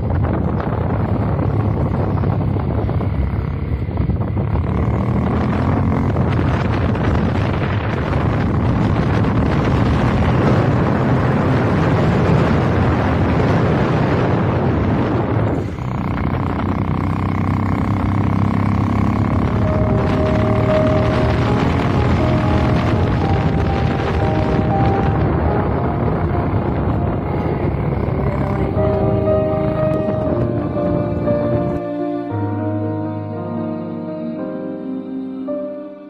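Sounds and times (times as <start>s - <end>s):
wind buffeting the microphone: 0.0s - 31.9s
motorcycle engine running: 0.0s - 32.7s.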